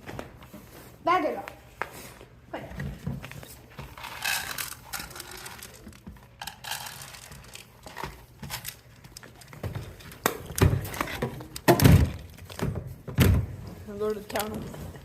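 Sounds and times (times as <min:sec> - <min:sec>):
bag crinkling and rustling: 0:03.4 - 0:12.6.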